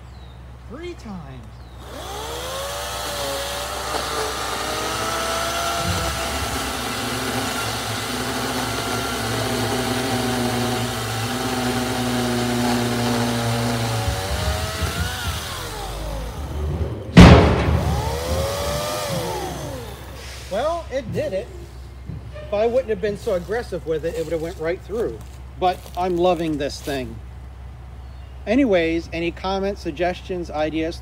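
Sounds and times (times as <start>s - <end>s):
electric motor whining: 1.7s - 20.7s
loud sharp crack: 17.1s - 18.4s.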